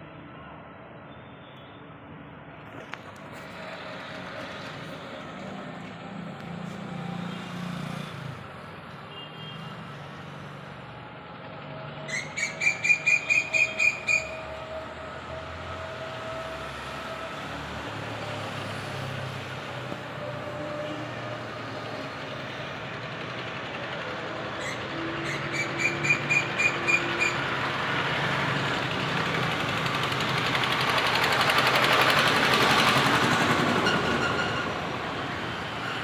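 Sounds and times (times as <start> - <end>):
bird chattering call: 12.1 - 14.4, 24.6 - 27.4.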